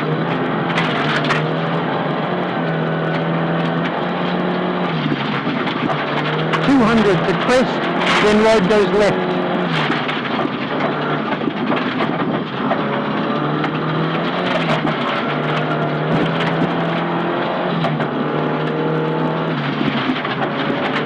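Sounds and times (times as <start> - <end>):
car engine running hard: 0.0 - 21.0.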